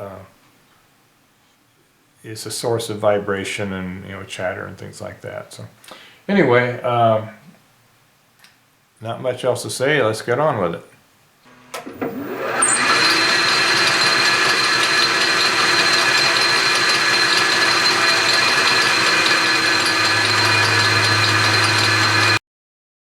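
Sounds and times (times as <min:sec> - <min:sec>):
lathe whine: 0:11.5 - 0:22.4.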